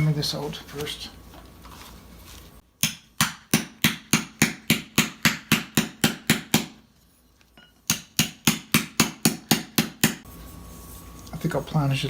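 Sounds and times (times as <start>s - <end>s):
hammer striking metal: 2.8s - 6.8s, 7.6s - 10.2s.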